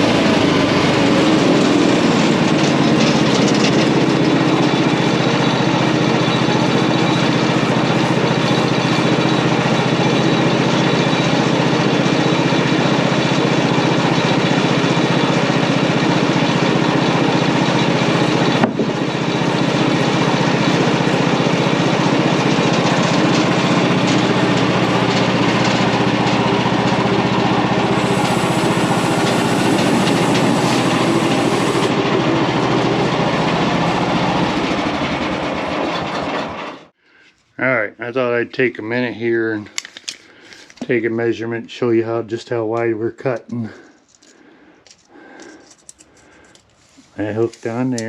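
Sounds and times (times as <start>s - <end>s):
band sawmill cutting log: 0.0s - 36.9s.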